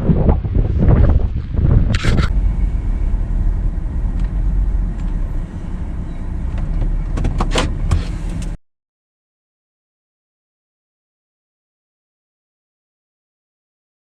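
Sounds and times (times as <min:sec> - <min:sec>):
vehicle driving rumble: 0:00.0 - 0:08.6.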